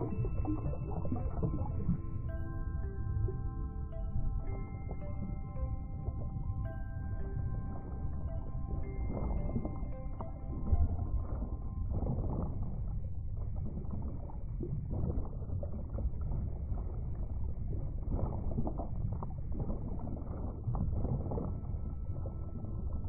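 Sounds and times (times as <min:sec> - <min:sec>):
underwater rumble of water: 0:00.0 - 0:23.0
underwater crackles: 0:07.6 - 0:23.0.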